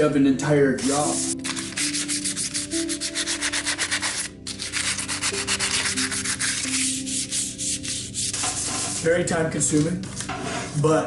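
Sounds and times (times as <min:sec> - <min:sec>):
sanding steel scraping: 0:00.8 - 0:09.2.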